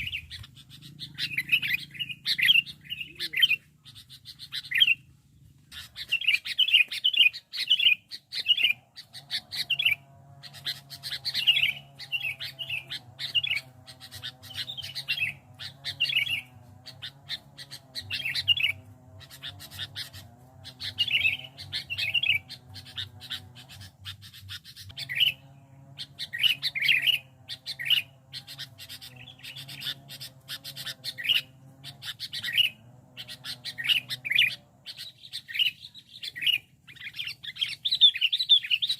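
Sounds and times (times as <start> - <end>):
bird singing chirpy phrases: 0.0 - 38.9
faint steady hum: 8.0 - 38.3.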